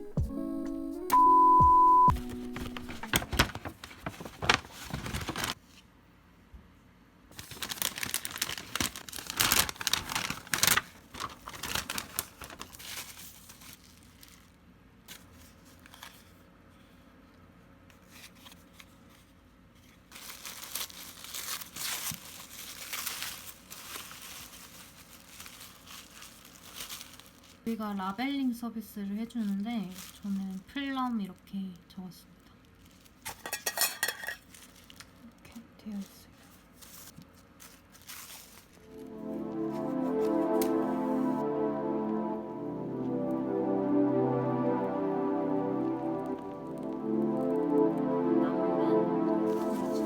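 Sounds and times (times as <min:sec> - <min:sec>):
paper rustling and tearing: 0:02.1 - 0:05.8, 0:07.3 - 0:14.5, 0:20.0 - 0:27.6, 0:36.4 - 0:38.8.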